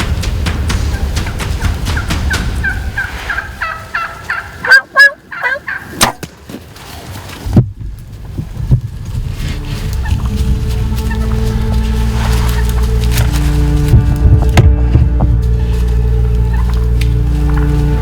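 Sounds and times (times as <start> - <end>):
turkey gobbling: 0.7 - 6.2, 9.3 - 18.0
wind on microphone: 7.4 - 16.5.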